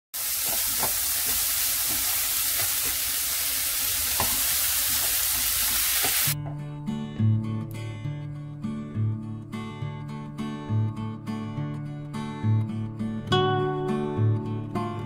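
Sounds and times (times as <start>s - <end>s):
vegetables sizzling in hot oil: 0.2s - 6.4s
acoustic guitar music: 6.4s - 15.0s.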